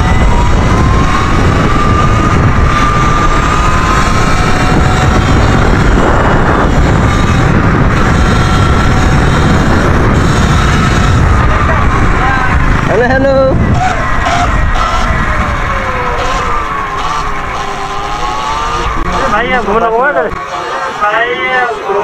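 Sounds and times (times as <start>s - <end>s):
wind rumble on microphone: 0.0s - 20.4s
electric motor whining: 0.0s - 22.0s.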